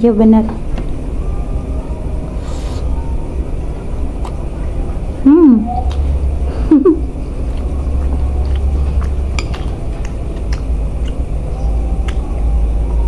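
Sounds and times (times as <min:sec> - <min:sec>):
steady low hum: 0:00.0 - 0:13.0
person chewing food: 0:07.1 - 0:13.0.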